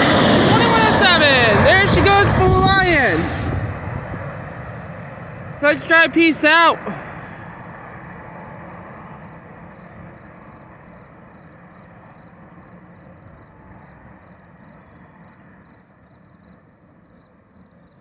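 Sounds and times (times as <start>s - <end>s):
passenger train rumbling: 0.0s - 11.5s.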